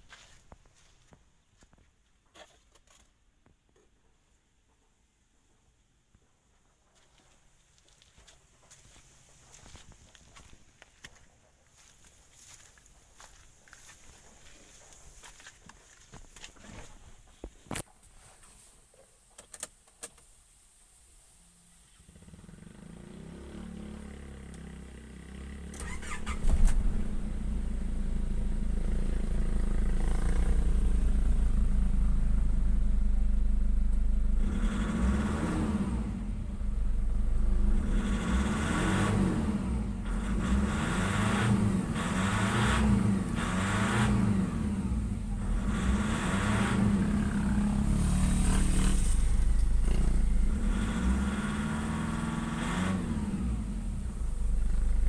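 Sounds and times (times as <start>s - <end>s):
diesel engine starting and running: 22.1s - 55.0s
engine revving: 22.1s - 55.0s.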